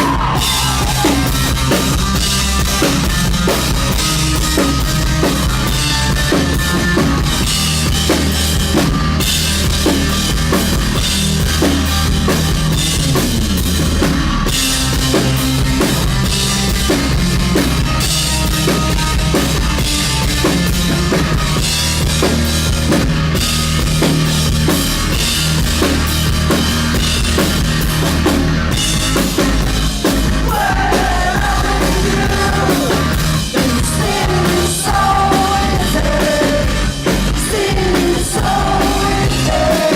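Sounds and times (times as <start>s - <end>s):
drum kit beat: 0.0s - 39.9s
live rock band playing: 0.0s - 39.9s.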